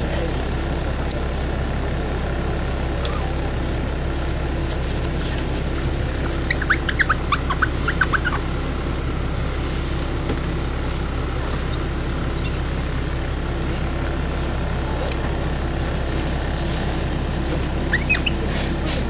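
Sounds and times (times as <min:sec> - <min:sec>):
diesel engine drone: 0:00.0 - 0:19.0
sharp high chirps: 0:06.2 - 0:08.5.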